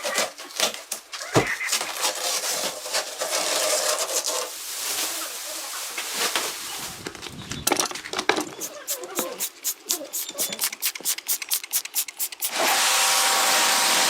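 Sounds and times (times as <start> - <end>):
parts rubbing and scraping: 0.0 - 5.1, 6.2 - 14.0
power tool whine: 12.5 - 14.0.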